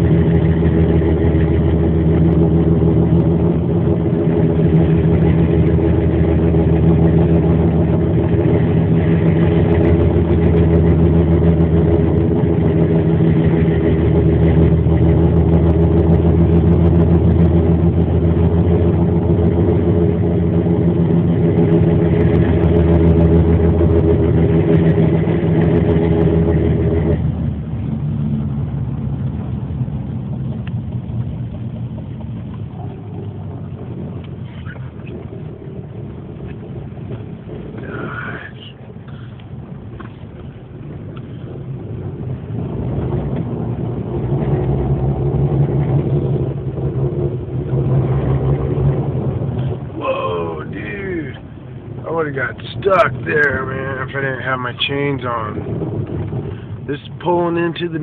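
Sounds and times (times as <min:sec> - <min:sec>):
car engine and road drone: 0:00.0 - 0:58.0.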